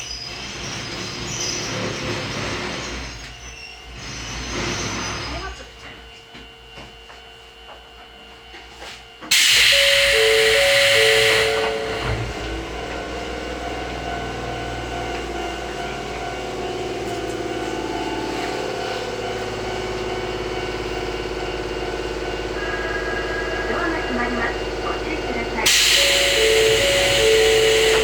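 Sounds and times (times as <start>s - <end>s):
train running noise and motor hum: 0.0s - 28.0s
train pneumatic air hiss: 9.3s - 12.5s, 25.6s - 28.0s
short beeping tones: 9.3s - 12.8s, 25.7s - 28.0s.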